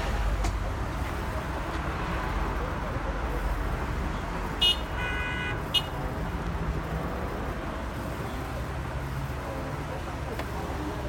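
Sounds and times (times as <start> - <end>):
traffic rumble: 0.0 - 11.0
vehicle horn toots: 4.6 - 6.0.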